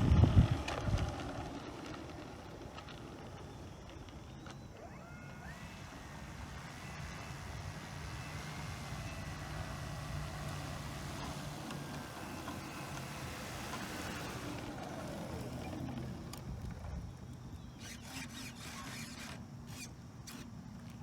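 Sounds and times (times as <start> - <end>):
low wind rumble: 0.0 - 4.3
electric motor whining: 2.8 - 21.0.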